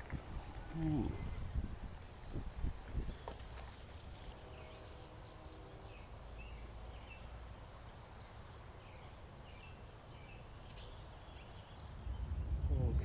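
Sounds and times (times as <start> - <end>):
low rumble: 11.9 - 13.0.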